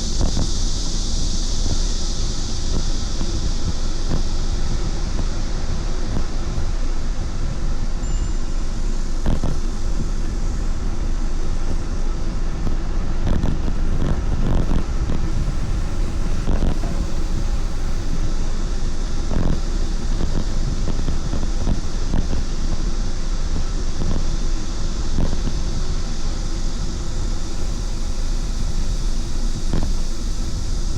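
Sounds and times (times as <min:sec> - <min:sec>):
wind rush on microphone: 0:00.0 - 0:30.9.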